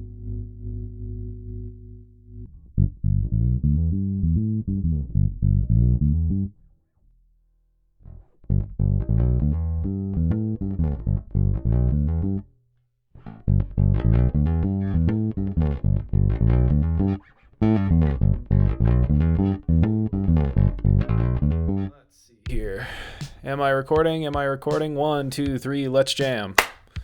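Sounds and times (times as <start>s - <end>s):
electric bass plucked notes: 0.0s - 6.7s, 8.0s - 12.5s, 13.2s - 22.0s.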